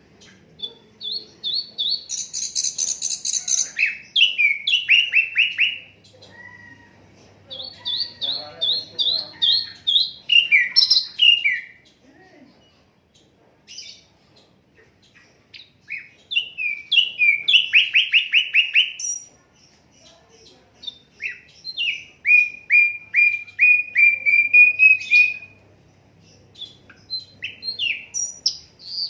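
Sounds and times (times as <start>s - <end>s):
bird whistling song: 0.3s - 5.9s, 7.6s - 11.8s, 15.5s - 19.3s, 20.8s - 25.6s, 26.6s - 29.0s.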